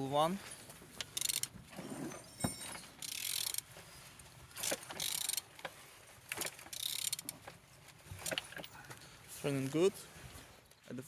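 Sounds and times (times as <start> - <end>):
ratchet wrench clicking: 1.2 - 1.5, 3.0 - 3.6, 4.7 - 5.4, 6.7 - 7.3.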